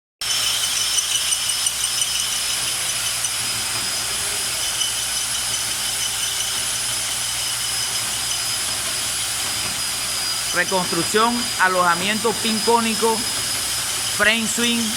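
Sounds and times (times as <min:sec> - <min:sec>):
line-boring machine whining: 0:00.2 - 0:14.9.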